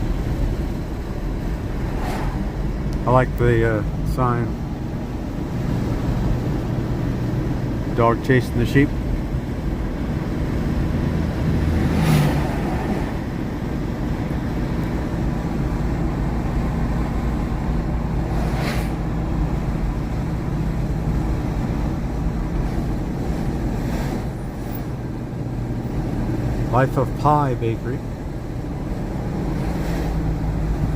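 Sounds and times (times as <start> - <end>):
car engine and road noise: 0.0 - 30.9.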